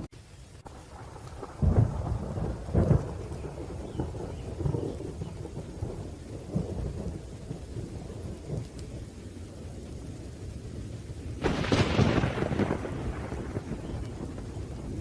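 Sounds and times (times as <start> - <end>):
rolling thunder: 0.0 - 15.0
steady rain: 0.0 - 15.0
loud thunderclap: 0.7 - 8.9, 11.4 - 15.0.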